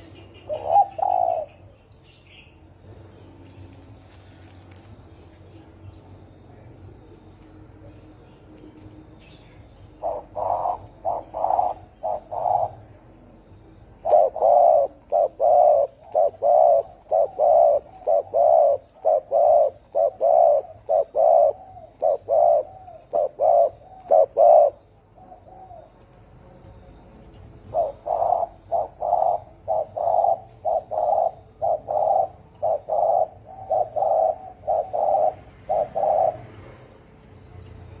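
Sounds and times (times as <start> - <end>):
dove cooing: 0.0 - 2.4, 9.7 - 26.1, 27.4 - 37.0.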